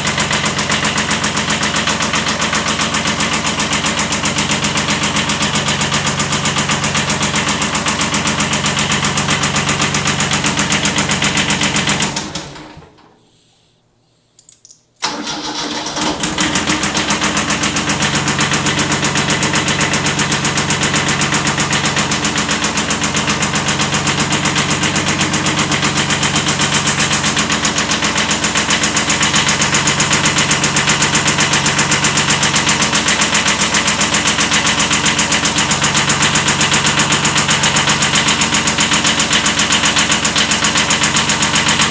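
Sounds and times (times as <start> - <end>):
diesel tractor engine running: 0.0 - 12.9, 15.0 - 41.9
engine cranking: 15.0 - 41.9.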